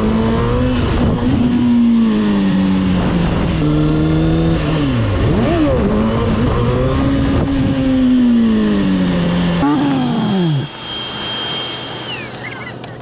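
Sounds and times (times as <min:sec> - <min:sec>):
motorcycle engine revving: 0:09.6 - 0:13.0.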